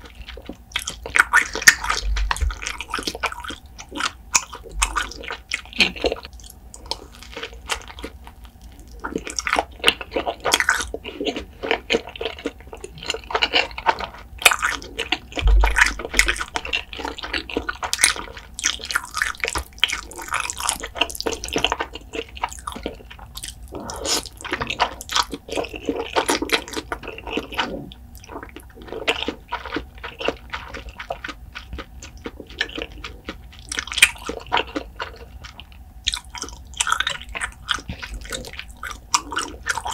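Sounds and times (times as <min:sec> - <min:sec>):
wet chewing and smacking: 0:00.0 - 0:39.9
crunchy bites: 0:08.9 - 0:39.9.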